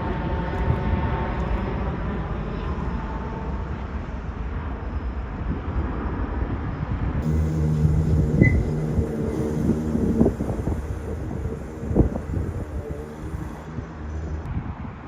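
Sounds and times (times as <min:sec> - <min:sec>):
jet engines rumbling: 0:07.2 - 0:14.5
steady low hum: 0:07.2 - 0:14.5.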